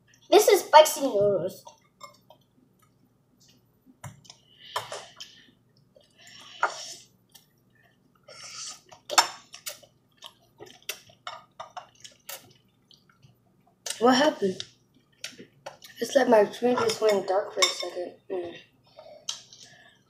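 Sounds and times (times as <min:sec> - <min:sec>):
wet chewing clicks and smacks: 0:08.8 - 0:14.0, 0:14.6 - 0:16.0.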